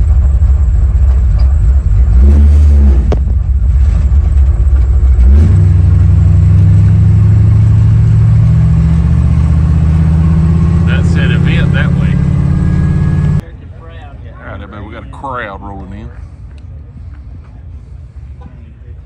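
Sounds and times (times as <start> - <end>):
pickup truck engine running: 0.0 - 13.5.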